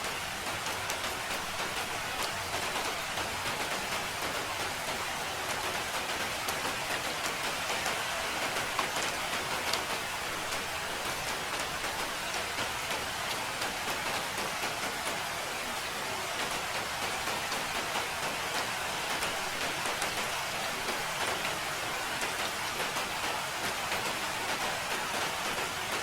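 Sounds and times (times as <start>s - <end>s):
raindrops ticking: 0.0s - 15.6s
steady rain hiss: 0.0s - 26.0s.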